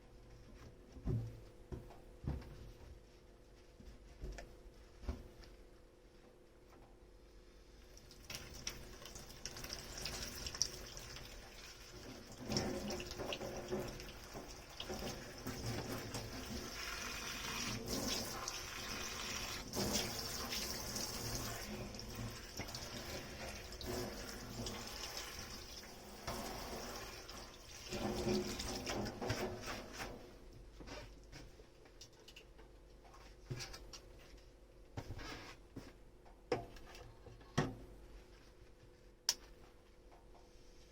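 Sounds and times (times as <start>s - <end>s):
tap water running into sink: 8.0s - 29.6s.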